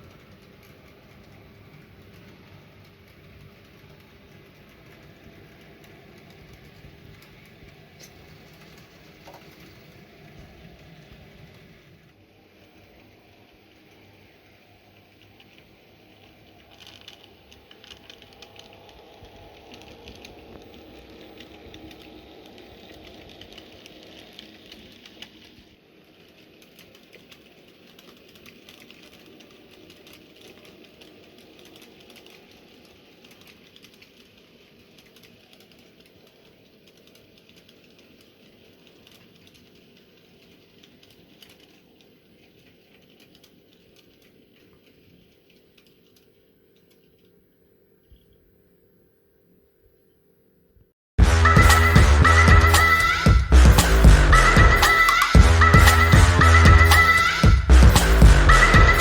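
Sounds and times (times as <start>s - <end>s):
model train wheels clattering: 0.0s - 47.1s.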